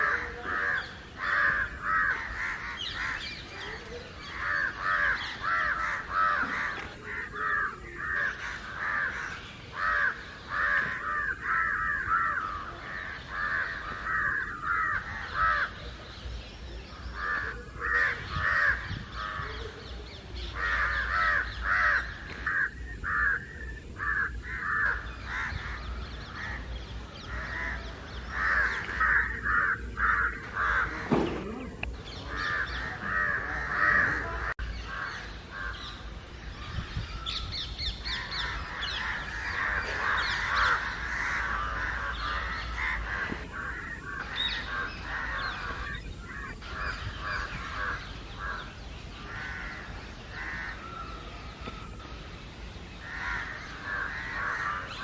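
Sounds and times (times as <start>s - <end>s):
crows cawing: 0.0s - 16.0s, 17.0s - 19.8s, 20.4s - 36.2s, 37.3s - 52.1s, 53.0s - 55.0s.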